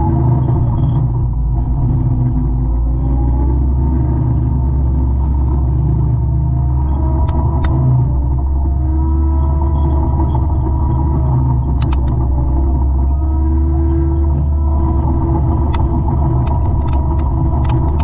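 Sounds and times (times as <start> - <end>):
diesel engine droning: 0.0 - 18.0
sharp clicks: 7.0 - 8.2, 11.5 - 12.6, 15.6 - 18.0.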